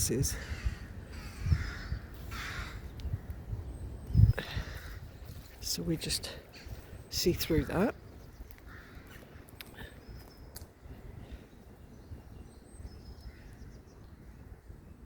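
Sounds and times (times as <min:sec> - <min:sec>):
faint birdsong chirps: 0:00.0 - 0:15.0.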